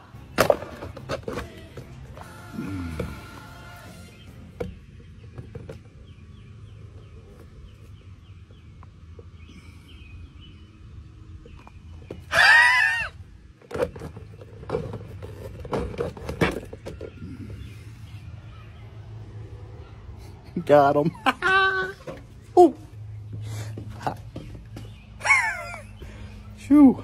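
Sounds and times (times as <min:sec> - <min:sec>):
squawking bird call: 0:12.3 - 0:13.2.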